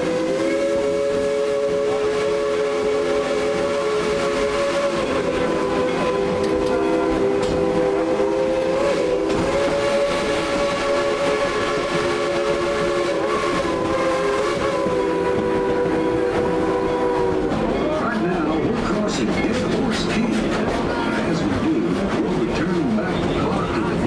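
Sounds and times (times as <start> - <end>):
steam locomotive whistle: 0.0 - 18.4
train rumble and clatter: 0.0 - 24.0.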